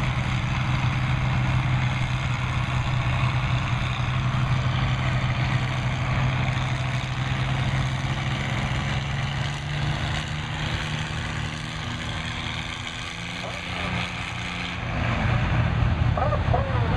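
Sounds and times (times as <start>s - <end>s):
tractor engine humming: 0.0s - 16.9s.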